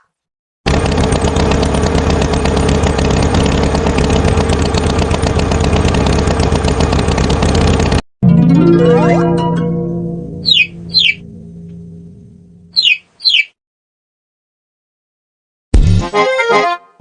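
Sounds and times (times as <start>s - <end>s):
cartoon tractor engine chugging: 0.7s - 13.5s.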